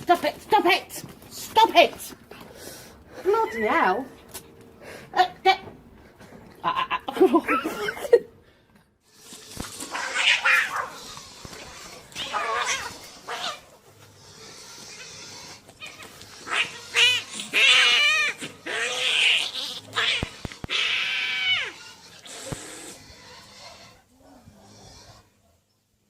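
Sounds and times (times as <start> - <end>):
cat hissing: 9.9 - 11.0
cats yowling: 9.9 - 11.1, 12.1 - 13.6, 15.8 - 21.8.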